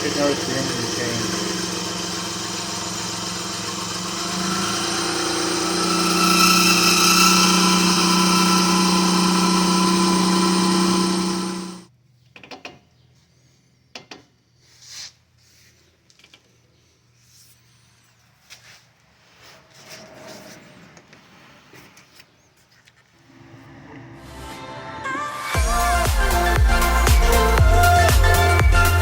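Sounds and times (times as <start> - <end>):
mini truck engine idling: 0.0 - 11.8.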